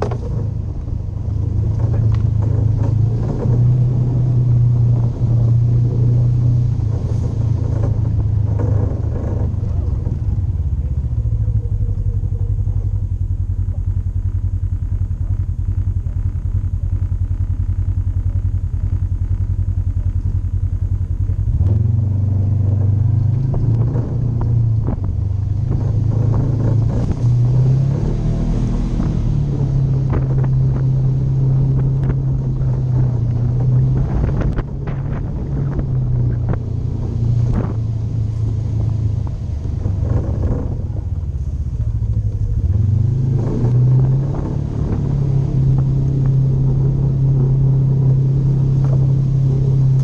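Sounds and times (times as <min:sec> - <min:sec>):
knocks and rattles from the ride: 0:00.0 - 0:14.0
off-road vehicle engine running: 0:00.0 - 0:50.0.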